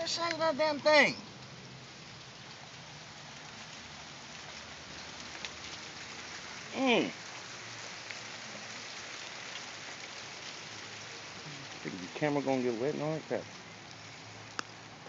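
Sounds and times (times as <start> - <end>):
man calling out: 0.0 - 1.2
hail and rain falling: 0.0 - 15.0.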